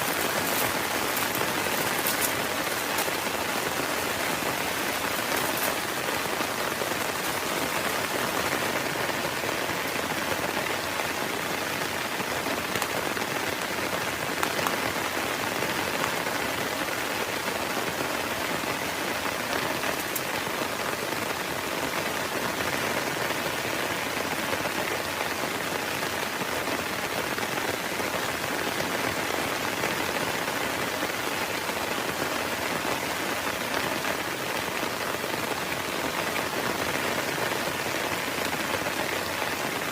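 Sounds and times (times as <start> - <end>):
sharp raindrop ticks: 0.0 - 11.0, 19.5 - 20.4
heavy rain hissing: 0.0 - 39.9.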